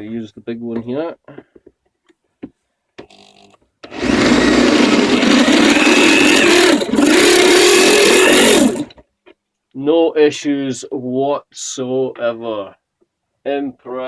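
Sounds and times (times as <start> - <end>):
power drill cutting through steel: 3.9 - 8.9.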